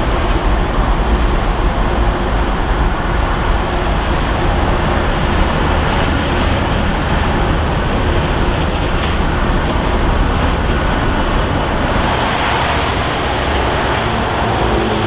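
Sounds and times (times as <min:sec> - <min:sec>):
jet engines roaring: 0:11.6 - 0:15.0.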